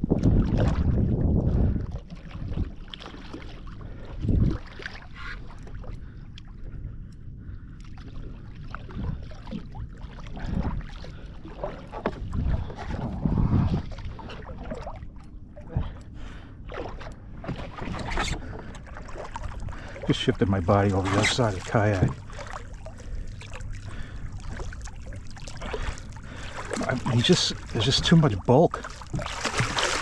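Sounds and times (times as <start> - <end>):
wind buffeting: 0.0 - 2.8, 12.2 - 14.0
water splashing against kayak: 0.0 - 30.0.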